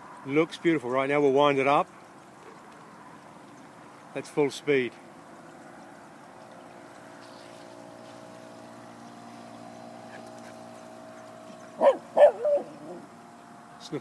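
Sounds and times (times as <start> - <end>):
model boat motor humming: 5.1 - 14.0
dog barking: 11.8 - 13.0.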